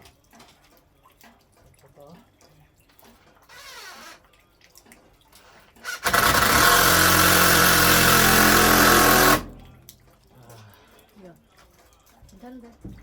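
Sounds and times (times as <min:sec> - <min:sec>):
motor running: 0:05.9 - 0:09.7.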